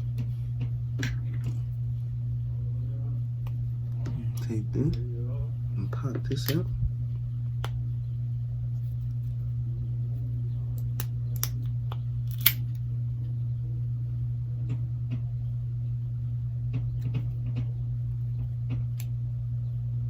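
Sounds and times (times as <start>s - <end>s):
steady low hum: 0.0s - 20.0s
tools clicking on phone parts: 12.3s - 12.6s.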